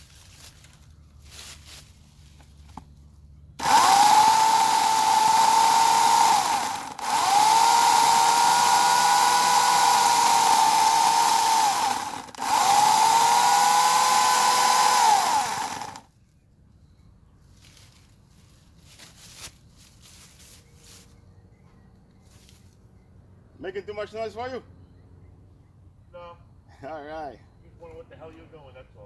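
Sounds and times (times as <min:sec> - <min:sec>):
electric chainsaw motor whining: 0:03.6 - 0:16.1.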